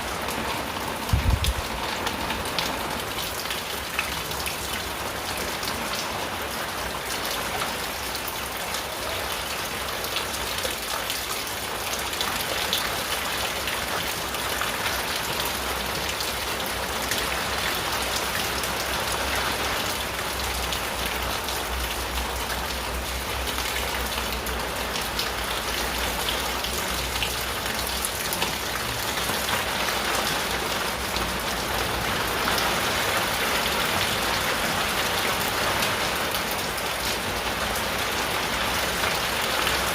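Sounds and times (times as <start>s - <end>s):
rain drumming on a tin roof: 0.0s - 39.9s.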